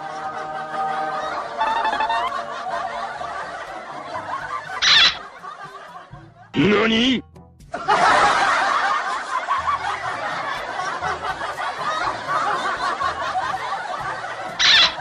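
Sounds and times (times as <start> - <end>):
crowd laughing: 0.0 - 7.0, 7.7 - 15.0.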